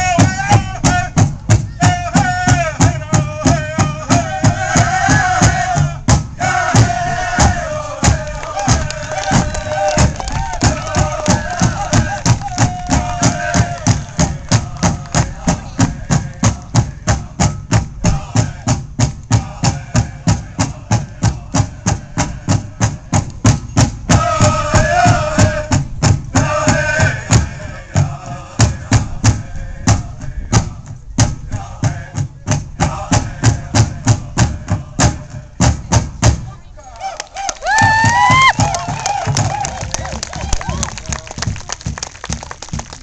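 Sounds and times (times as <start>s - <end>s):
singers' voices wavering: 0.0s - 23.2s
drum beaten in fast pulse: 0.0s - 36.6s, 37.6s - 43.0s.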